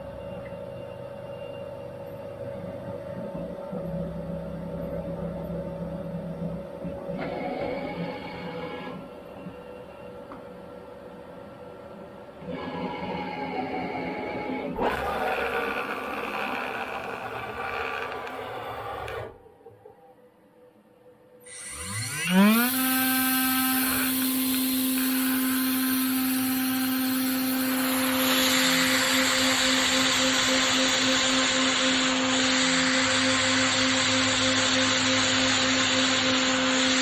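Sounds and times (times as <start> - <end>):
machine cutting noise: 14.8 - 19.3, 21.5 - 37.0
machine spindle whining: 14.8 - 19.4, 21.5 - 37.0.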